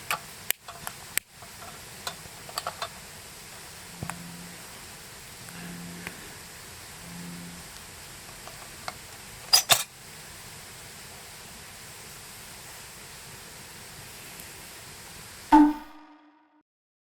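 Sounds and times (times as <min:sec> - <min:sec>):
faint hiss: 0:00.0 - 0:15.6
small ticks: 0:05.4 - 0:06.4
metal cookware clinking: 0:09.5 - 0:09.9.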